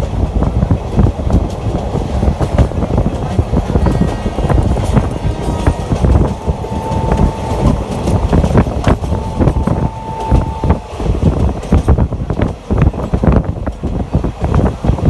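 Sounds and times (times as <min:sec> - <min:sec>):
train wheels rumbling on rails: 0:00.0 - 0:15.0
wind buffeting microphone: 0:00.0 - 0:15.0
held high tones: 0:03.7 - 0:11.1.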